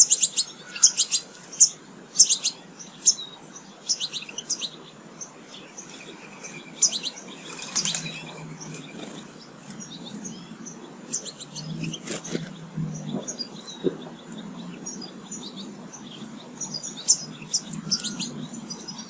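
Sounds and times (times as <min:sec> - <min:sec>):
songbirds chirping and twittering: 0:00.0 - 0:19.0
faint low rumble: 0:06.5 - 0:19.0.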